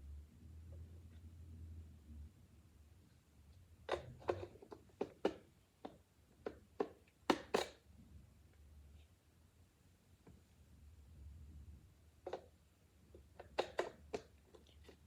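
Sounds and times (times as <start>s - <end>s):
plastic parts knocking and clicking: 3.8s - 7.8s, 13.1s - 15.0s.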